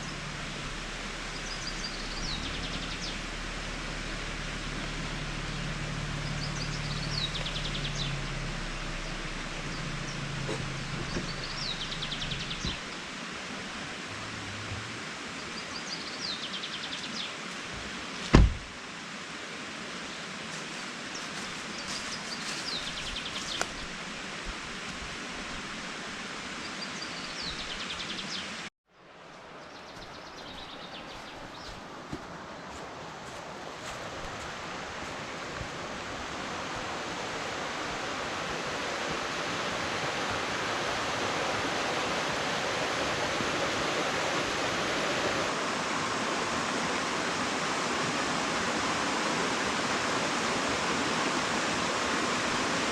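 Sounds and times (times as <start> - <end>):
steady rushing hiss: 0.0 - 28.7, 29.6 - 52.9
songbird trilled song: 1.3 - 3.3, 5.5 - 8.3, 9.0 - 12.9.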